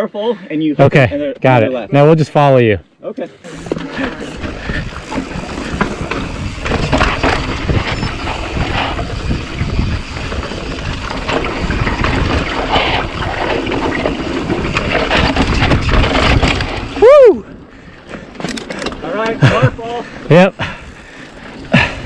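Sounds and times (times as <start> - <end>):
bike rattling and knocking: 3.5 - 17.0
wind buffeting microphone: 4.3 - 17.9.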